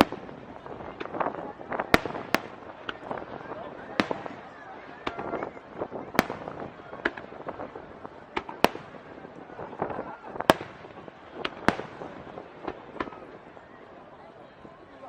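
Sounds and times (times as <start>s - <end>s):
fireworks bursting: 0.0s - 14.9s.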